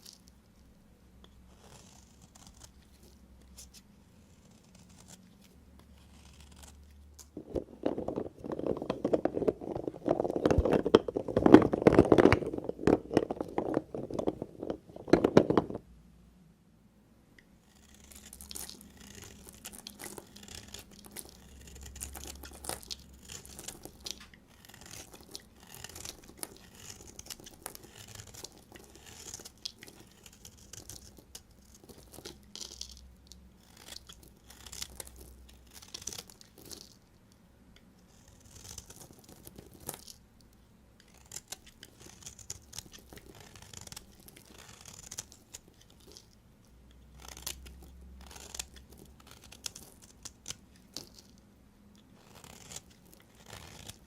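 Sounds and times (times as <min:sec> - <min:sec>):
knife cutting through soap: 0:01.2 - 0:15.8, 0:17.6 - 0:32.9, 0:41.0 - 0:46.3, 0:47.0 - 0:51.3, 0:52.2 - 0:54.0.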